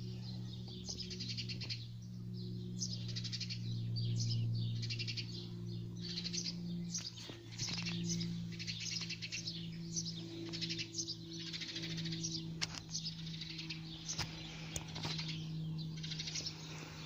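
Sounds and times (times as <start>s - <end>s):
small bird chirping: 0.0s - 17.0s
steady low hum: 0.0s - 17.0s.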